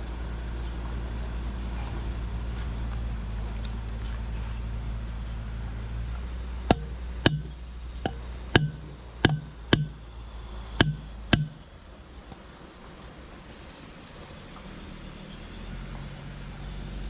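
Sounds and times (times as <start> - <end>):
steady low hum: 6.4 - 12.1
sharp knocks: 6.7 - 10.0, 10.8 - 11.7.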